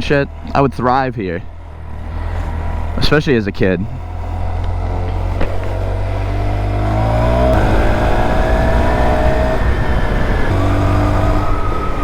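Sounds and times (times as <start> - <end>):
gear change: 0.0 - 12.0
small motorcycle engine accelerating: 3.9 - 12.0.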